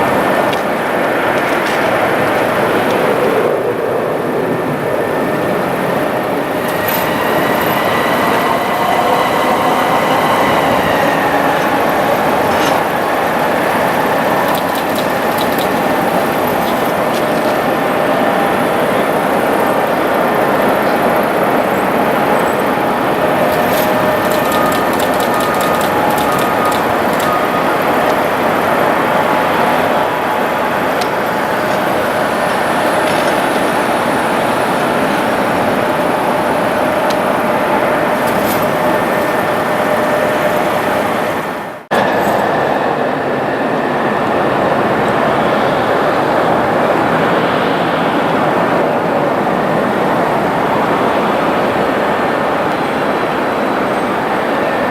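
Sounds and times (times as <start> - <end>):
jet engines rushing: 0.0 - 54.9.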